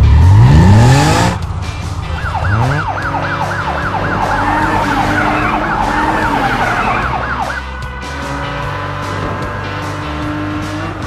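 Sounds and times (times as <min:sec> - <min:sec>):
vehicle engine revving: 0:00.0 - 0:11.0
siren yelping wail: 0:02.1 - 0:07.8.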